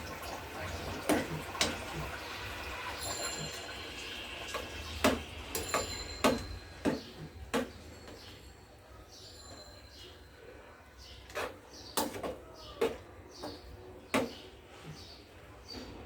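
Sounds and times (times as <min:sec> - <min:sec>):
utensil knocking against cooking pot: 0:05.0 - 0:08.3.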